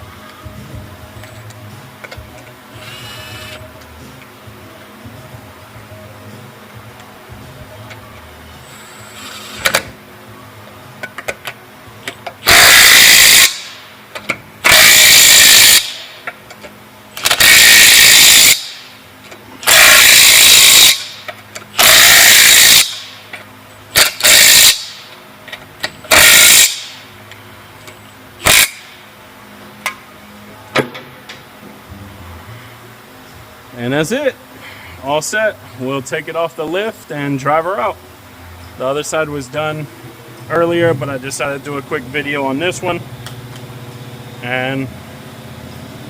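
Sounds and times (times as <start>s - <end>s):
impact wrench spinning lug nuts: 9.0s - 9.9s, 12.3s - 16.3s, 17.2s - 18.8s, 19.6s - 25.2s, 25.8s - 27.0s, 28.4s - 28.9s.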